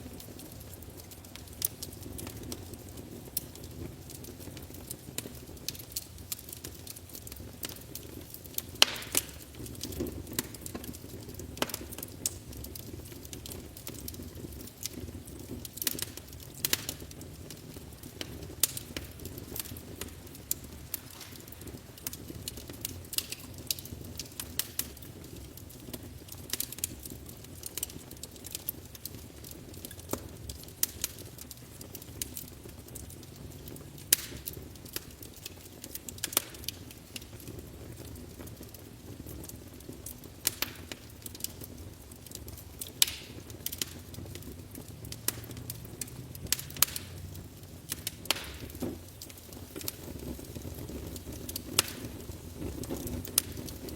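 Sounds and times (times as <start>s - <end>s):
low rumble of flame: 0.0s - 53.9s
wood fire crackling and popping: 0.0s - 53.9s.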